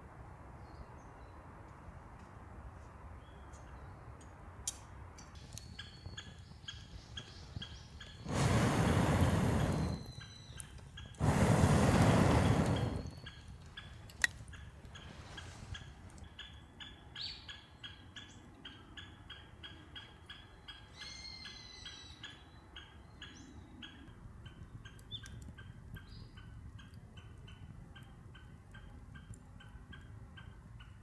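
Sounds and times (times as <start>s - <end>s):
bird calls: 5.4s - 18.4s.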